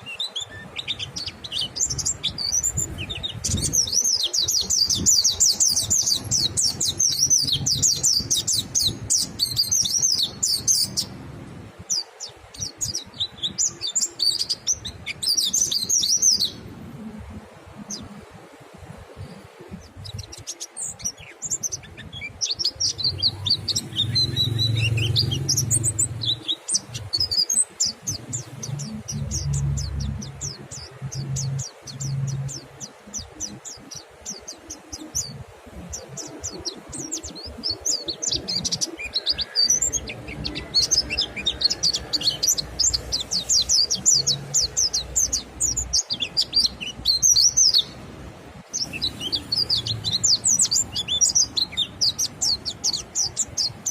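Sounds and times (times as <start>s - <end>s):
birds chirping in high trills: 0.0s - 53.9s.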